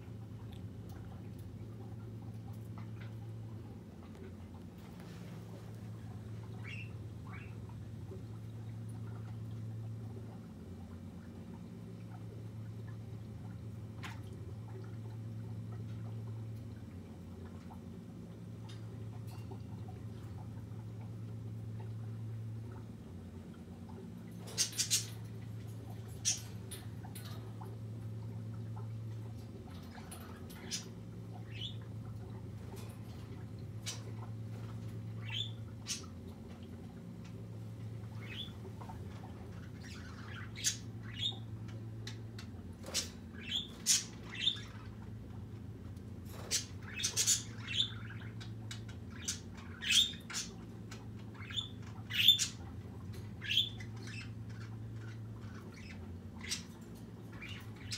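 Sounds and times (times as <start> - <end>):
low hum: 0.0 - 57.9
birds squawking and chirping: 6.0 - 7.8, 24.3 - 28.2, 28.8 - 36.4, 38.0 - 45.1, 46.3 - 57.9.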